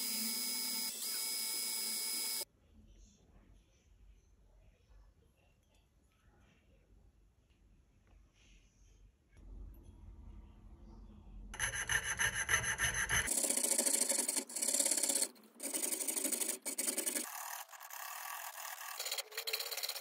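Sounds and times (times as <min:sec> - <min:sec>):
saw blade cutting metal: 0:11.6 - 0:20.0.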